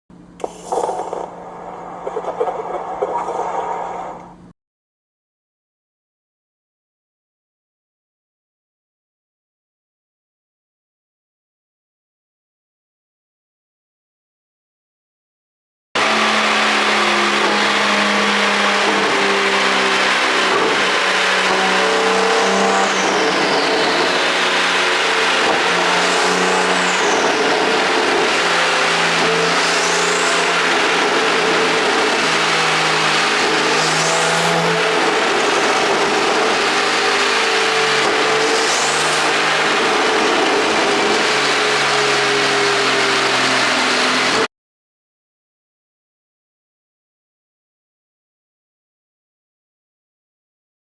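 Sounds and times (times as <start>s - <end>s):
car engine revving: 16.0s - 44.5s.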